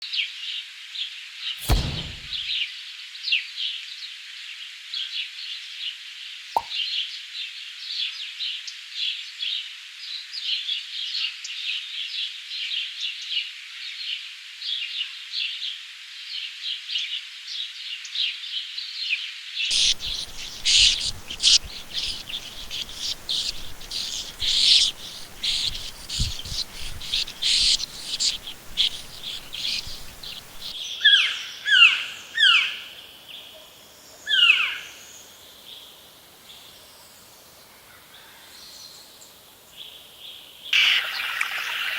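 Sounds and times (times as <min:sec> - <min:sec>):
bird calls sliding downward: 0:19.7 - 0:30.8
birds chirping in chorus: 0:19.7 - 0:30.8.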